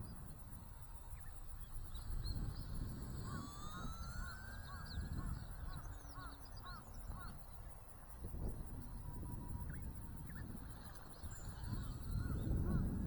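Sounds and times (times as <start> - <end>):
rc plane electric motor whine: 1.5 - 6.9
wind buffeting microphone: 8.2 - 13.0.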